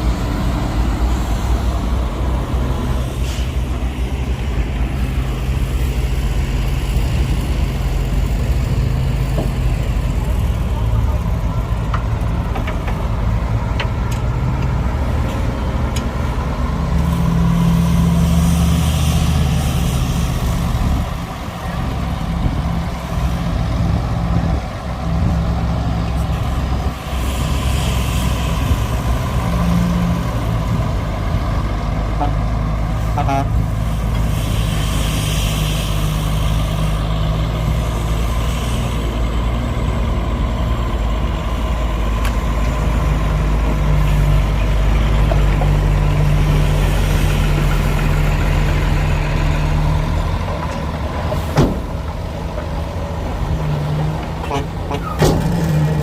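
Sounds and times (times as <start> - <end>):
diesel machinery engine running: 0.0 - 56.0
hiss: 2.4 - 8.4, 17.1 - 21.6, 26.2 - 30.1, 33.0 - 39.5.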